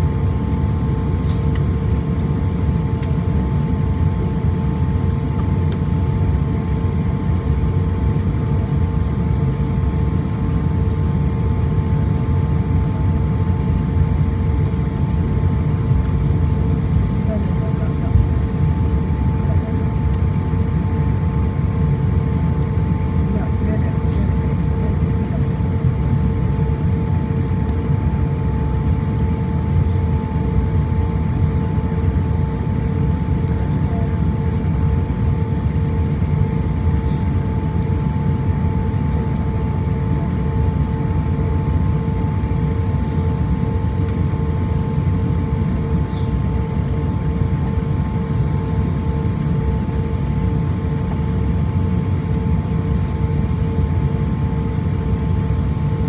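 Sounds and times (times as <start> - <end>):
aircraft cabin rumble: 0.0 - 56.0
steady whine: 16.8 - 48.2.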